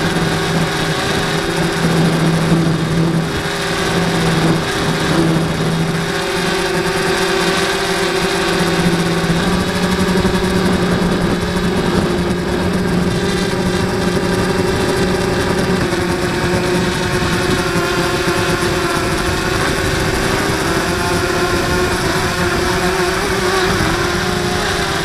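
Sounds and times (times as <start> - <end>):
quadcopter propellers whirring: 0.0 - 25.0.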